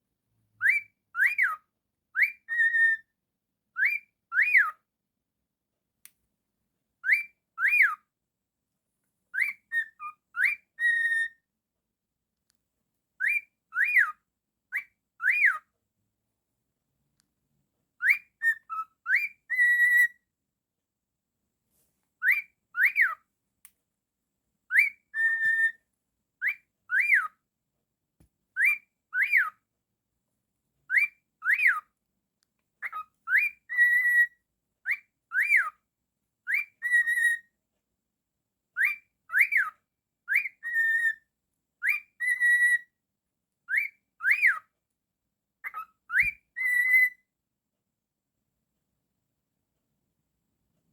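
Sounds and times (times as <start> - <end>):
cockatiel whistling a tune: 0.6 - 3.1, 3.8 - 4.8, 7.0 - 8.0, 9.3 - 11.4, 13.2 - 15.6, 18.0 - 20.2, 22.2 - 23.2, 24.7 - 25.8, 26.4 - 27.3, 28.6 - 29.6, 30.9 - 31.8, 32.8 - 35.8, 36.5 - 37.5, 38.8 - 43.0, 43.7 - 44.7, 45.6 - 47.3.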